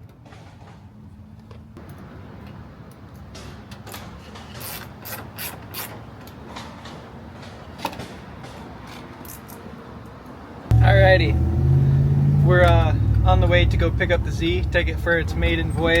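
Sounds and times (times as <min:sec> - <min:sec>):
low steady hum: 0:10.7 - 0:16.0.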